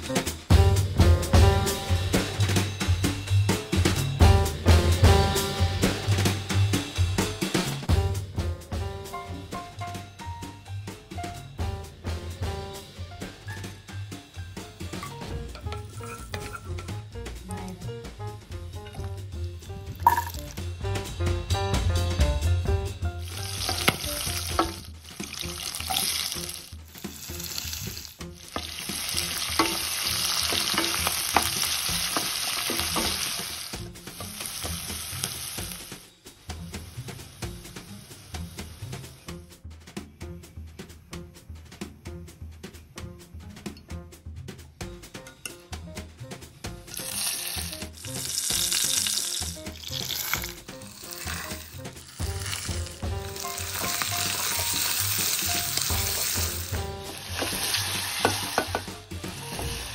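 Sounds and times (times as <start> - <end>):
soft background music: 0.0 - 59.9
spatula knocking and scraping pan: 14.8 - 17.0, 23.3 - 24.9, 28.5 - 34.8, 53.3 - 59.8
vegetables sizzling in hot oil: 23.2 - 39.2, 46.9 - 59.9.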